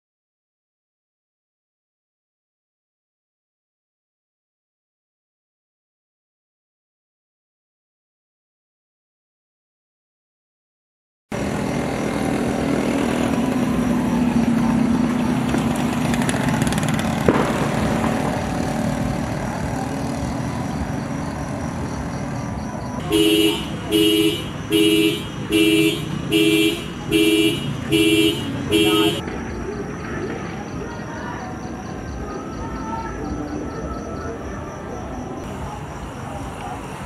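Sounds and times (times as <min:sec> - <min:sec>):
street traffic: 0:11.3 - 0:37.0
car horn beeps: 0:23.0 - 0:29.2.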